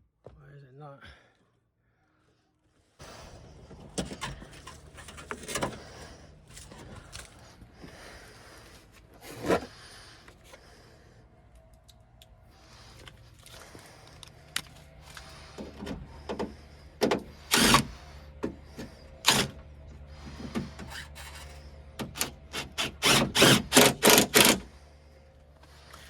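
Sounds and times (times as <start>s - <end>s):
loud tool strokes: 17.3s - 18.3s, 20.4s - 24.7s.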